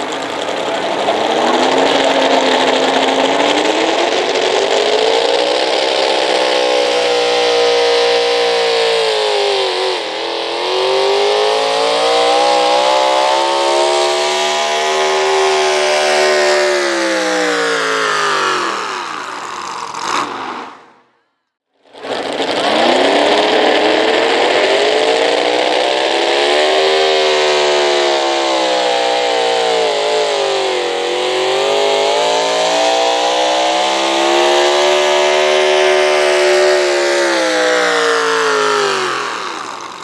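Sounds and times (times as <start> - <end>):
sharp crack: 0.0 - 20.9
pickup truck engine revving: 0.0 - 21.1, 21.9 - 40.0.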